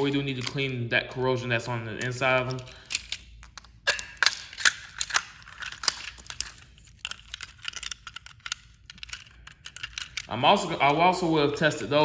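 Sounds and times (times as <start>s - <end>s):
plastic toy clicks and knocks: 2.0s - 10.3s.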